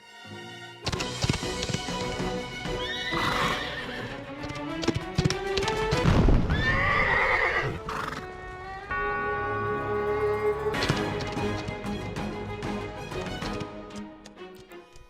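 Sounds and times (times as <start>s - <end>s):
background music: 0.0s - 15.0s
hooves galloping: 0.9s - 8.6s, 10.8s - 15.0s
horse neighing: 2.8s - 4.1s, 6.5s - 8.2s.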